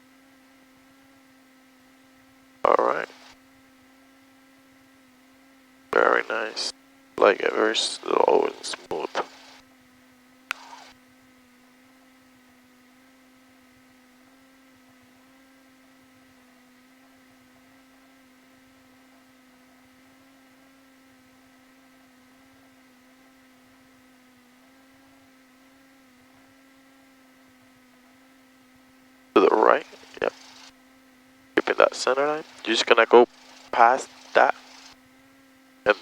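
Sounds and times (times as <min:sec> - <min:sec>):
faint electrical hum: 0:00.0 - 0:36.0.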